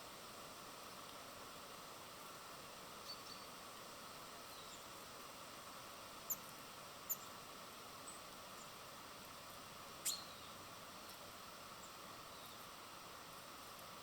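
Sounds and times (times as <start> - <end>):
faint background noise: 0.0 - 14.0
small birds chirping: 3.0 - 5.1, 6.2 - 7.4, 9.5 - 12.8.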